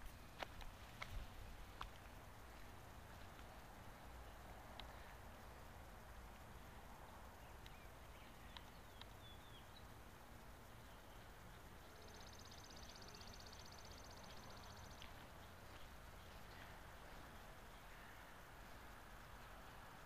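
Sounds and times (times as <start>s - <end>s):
faint high chirps: 7.1s - 20.0s.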